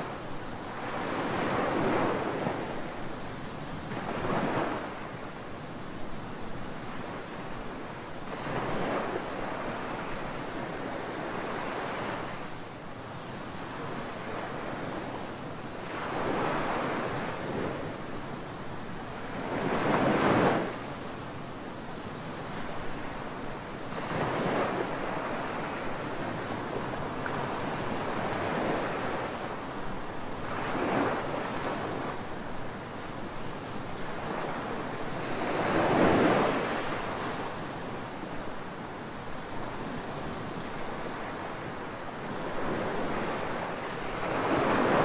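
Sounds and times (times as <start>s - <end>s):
ocean surf breaking on beach: 22.4s - 45.0s.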